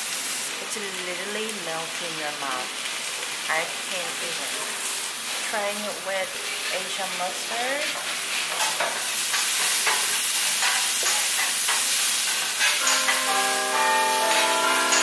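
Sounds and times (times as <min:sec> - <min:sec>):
food frying and sizzling: 0:00.0 - 0:15.0
bell-like chiming music: 0:12.8 - 0:15.0.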